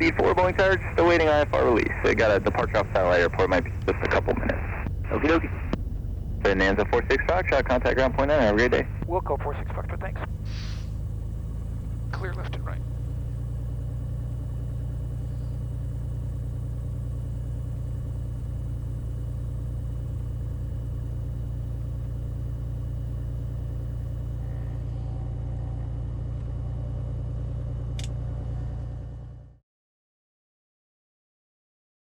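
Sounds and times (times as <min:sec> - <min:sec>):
plane piston engine droning: 0:00.0 - 0:26.5
brief click: 0:28.0 - 0:28.2.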